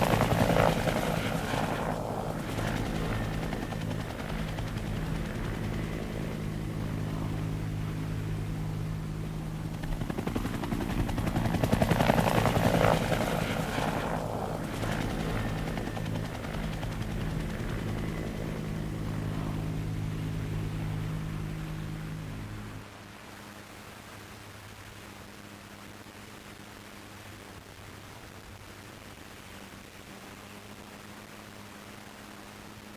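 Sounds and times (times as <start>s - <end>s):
helicopter rotors beating: 0.0s - 22.9s.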